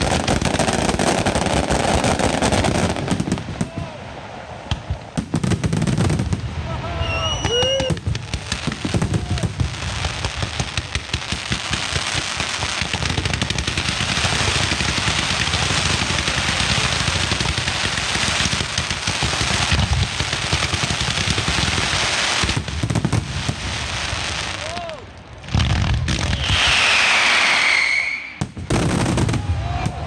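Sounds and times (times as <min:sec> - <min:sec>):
firecrackers cracking and banging: 0:00.0 - 0:04.0, 0:04.6 - 0:30.0.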